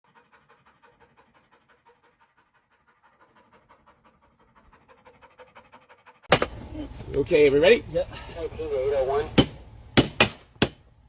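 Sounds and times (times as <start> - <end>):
faint rapid panting: 0.0 - 6.3.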